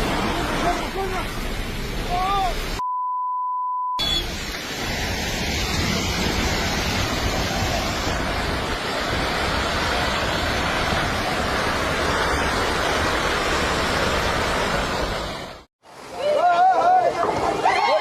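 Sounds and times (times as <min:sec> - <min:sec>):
landslide rushing noise: 0:04.1 - 0:18.0.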